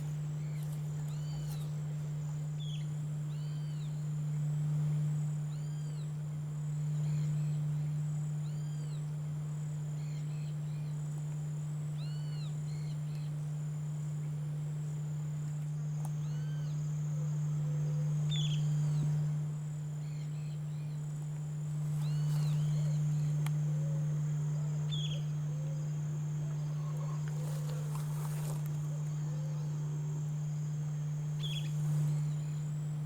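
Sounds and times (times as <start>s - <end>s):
bird calls: 0.0s - 1.8s, 17.6s - 19.2s, 21.8s - 29.8s, 31.4s - 32.7s
insect trill: 0.0s - 33.0s
steady low hum: 0.0s - 33.0s.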